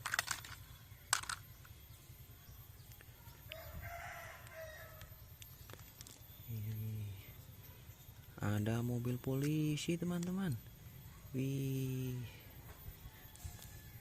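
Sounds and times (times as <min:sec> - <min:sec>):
sharp clicks: 0:00.0 - 0:01.8
rooster crowing: 0:03.2 - 0:05.3, 0:12.3 - 0:14.0
short low hum: 0:04.4 - 0:14.0.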